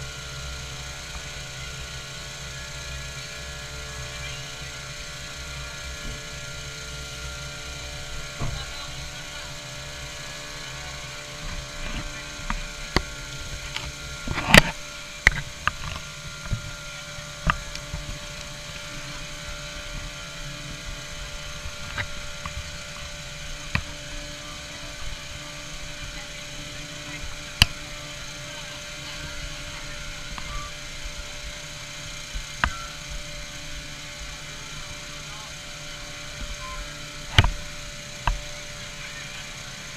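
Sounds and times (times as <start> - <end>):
machine hum: 0.0 - 39.9
sharp clicks and knocks: 11.3 - 20.1, 37.2 - 38.6.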